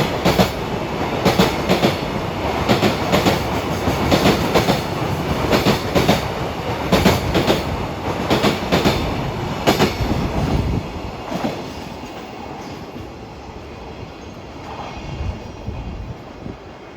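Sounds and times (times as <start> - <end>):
train wheels clacking over rail joints: 0.0 - 13.0
train rumble: 0.0 - 16.9.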